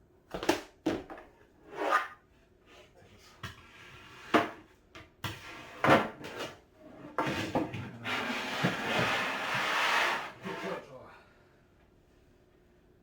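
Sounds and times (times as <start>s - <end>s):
scraping and rubbing: 7.2s - 10.9s.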